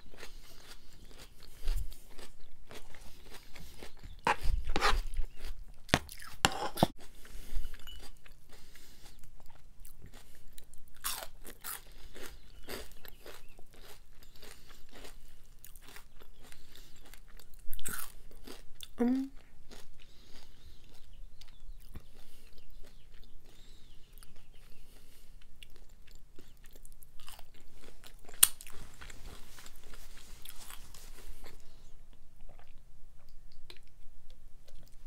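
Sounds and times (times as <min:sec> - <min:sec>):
chewing with crunches: 0:00.0 - 0:35.0.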